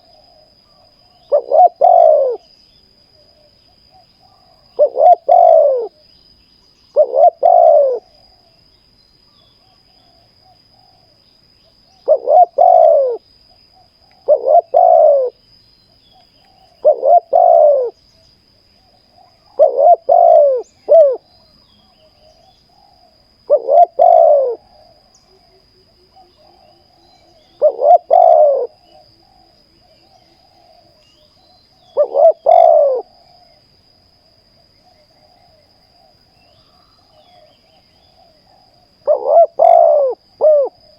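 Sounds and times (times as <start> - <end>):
dove cooing: 0.0 - 2.5, 3.2 - 6.0, 6.9 - 8.5, 12.0 - 13.2, 13.8 - 15.4, 16.6 - 18.0, 18.8 - 21.3, 22.1 - 31.0, 31.8 - 33.6, 37.1 - 40.9.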